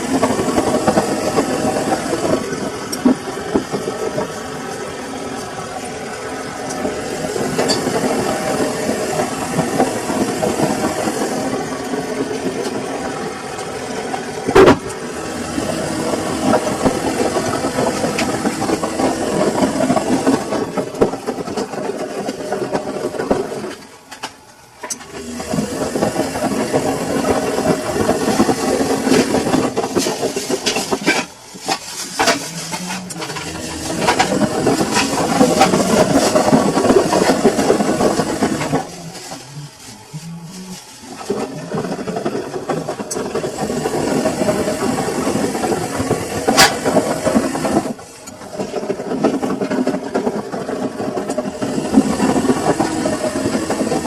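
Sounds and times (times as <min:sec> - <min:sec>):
washing machine churning: 0:00.0 - 0:54.0.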